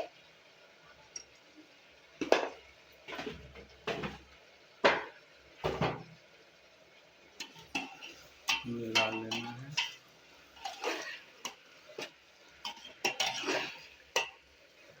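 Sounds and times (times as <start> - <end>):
metal spoon scraping pressure cooker: 12.7 - 14.4.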